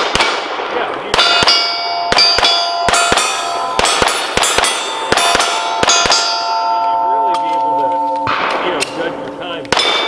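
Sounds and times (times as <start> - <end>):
pistol shots: 0.0 - 10.0
steel target plates ringing: 0.6 - 10.0.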